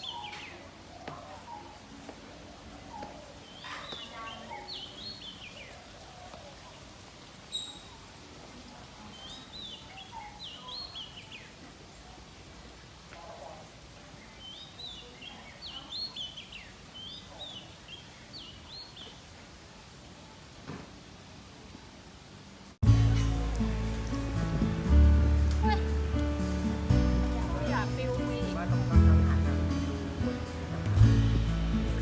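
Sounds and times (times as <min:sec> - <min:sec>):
songbirds singing: 0:00.0 - 0:19.8
outdoor background hiss: 0:00.0 - 0:32.0.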